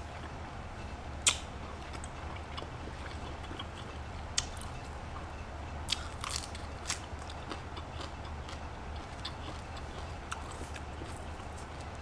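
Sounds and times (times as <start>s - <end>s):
steady low hum: 0.0s - 12.0s
wet mouth clicks: 1.2s - 1.4s
person chewing cucumber: 1.2s - 5.0s, 5.9s - 12.0s.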